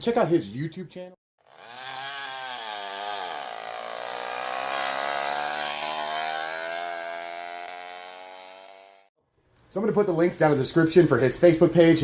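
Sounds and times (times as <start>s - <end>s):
two-stroke engine running: 1.4s - 9.1s.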